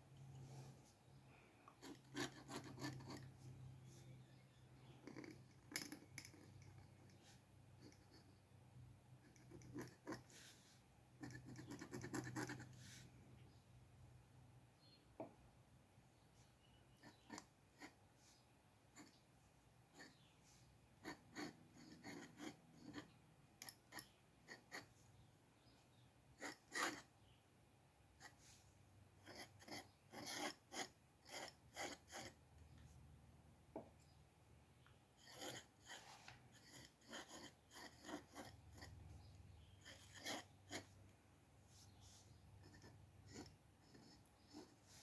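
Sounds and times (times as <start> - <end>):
drawing tool scratching paper: 1.8 - 3.6, 9.2 - 13.1, 17.0 - 18.3, 19.9 - 25.0, 26.3 - 27.1, 29.2 - 32.4, 35.2 - 41.0, 41.7 - 45.0.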